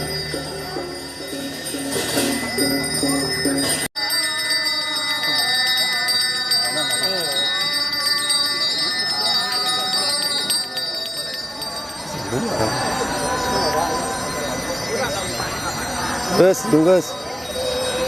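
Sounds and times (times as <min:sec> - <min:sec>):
small bells ringing rapidly: 0:00.0 - 0:18.0
slow wavering chant: 0:04.0 - 0:18.0.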